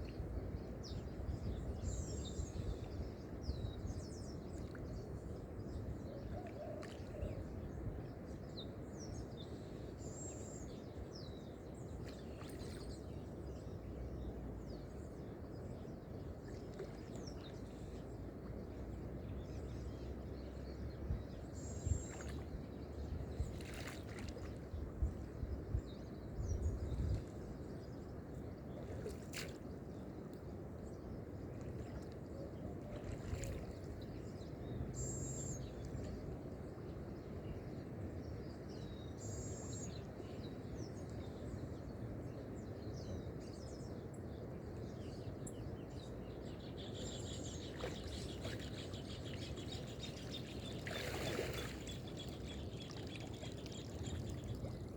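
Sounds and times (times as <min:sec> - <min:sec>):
water lapping: 0:16.4 - 0:19.0, 0:21.6 - 0:25.4, 0:31.5 - 0:34.3, 0:47.0 - 0:54.9.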